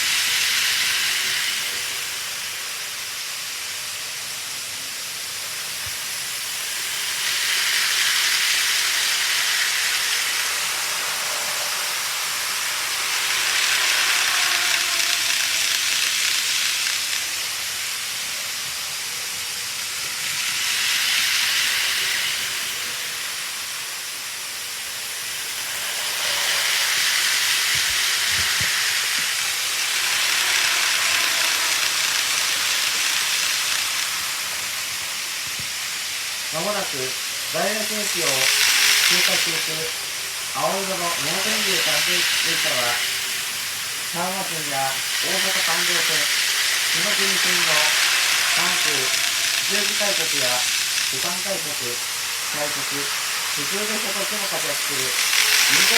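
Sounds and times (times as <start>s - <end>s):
model train wheels on rail: 0.0s - 55.9s.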